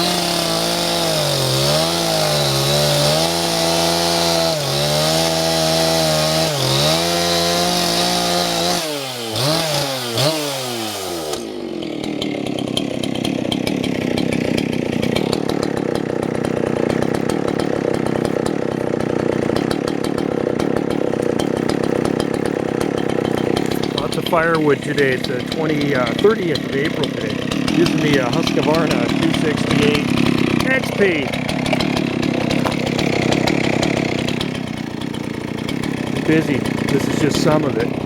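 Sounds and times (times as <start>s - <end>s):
chainsaw running at high revs: 0.0s - 38.0s
steady rattling with rapid clicks: 13.1s - 38.0s.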